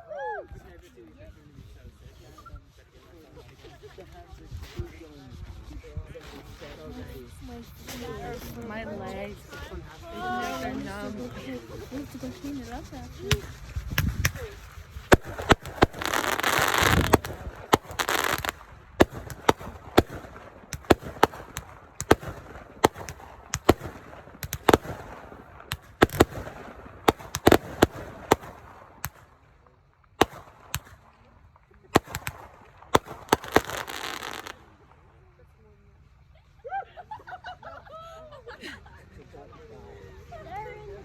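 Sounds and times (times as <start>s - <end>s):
fireworks hissing: 1.8s - 35.1s
fireworks bangs: 4.5s - 35.1s.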